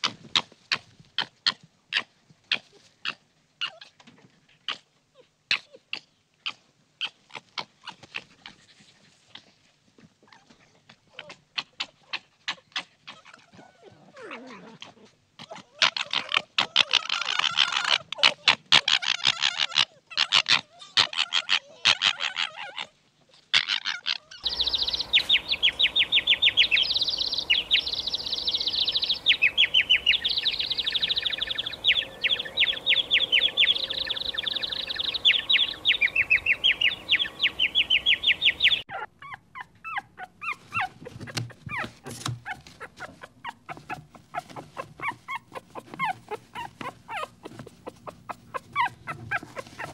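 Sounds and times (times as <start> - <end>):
puppy yipping and whimpering: 3.6 - 3.9, 10.2 - 22.9, 23.6 - 49.9
goldfinches twittering: 24.4 - 38.8
rapid high chattering calls: 24.4 - 39.1, 39.9 - 49.9.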